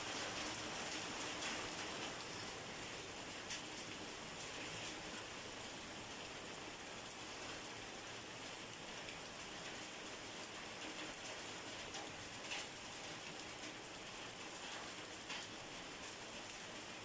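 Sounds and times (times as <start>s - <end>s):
individual raindrops: 0.0s - 17.0s
steady rain falling: 0.0s - 17.0s.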